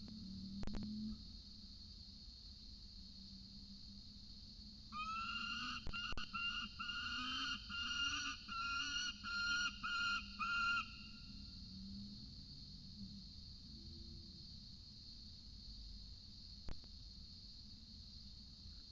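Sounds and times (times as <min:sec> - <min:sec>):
cicada drone: 0:00.0 - 0:18.9
falcon calling: 0:05.0 - 0:11.2.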